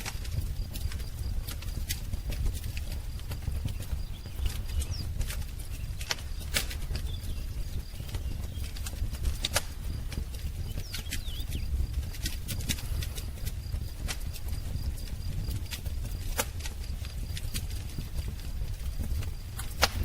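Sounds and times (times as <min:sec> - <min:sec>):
wood fire crackling: 0:00.0 - 0:20.0
bird chirp: 0:02.8 - 0:12.0.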